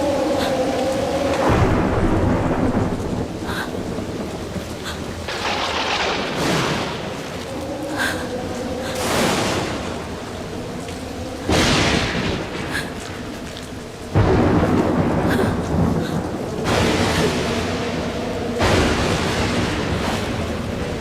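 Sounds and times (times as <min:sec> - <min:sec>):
steady rain: 0:00.0 - 0:21.0
thunder rolling: 0:00.0 - 0:21.0
loud thunder crash: 0:01.5 - 0:04.4, 0:05.2 - 0:07.4, 0:11.5 - 0:12.8, 0:14.1 - 0:21.0.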